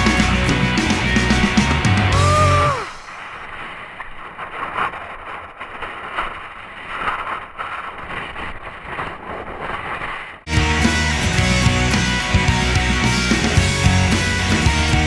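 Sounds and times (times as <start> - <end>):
rock music with guitar: 0.0 - 2.8, 10.5 - 15.0
wind on camera microphone: 2.4 - 10.5.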